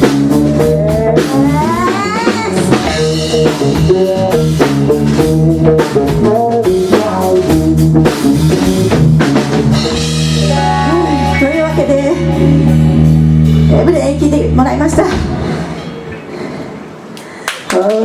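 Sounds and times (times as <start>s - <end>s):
drum kit: 0.0s - 16.1s
guitar: 0.0s - 16.8s
live rock band playing: 0.0s - 17.1s.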